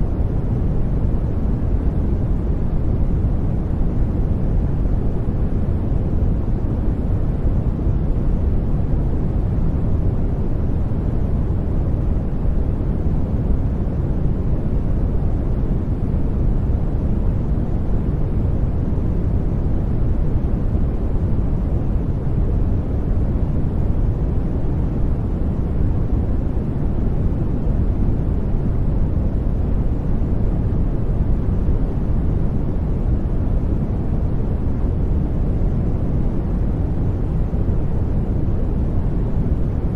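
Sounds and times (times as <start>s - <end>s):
deep brown noise rush: 0.0s - 39.9s.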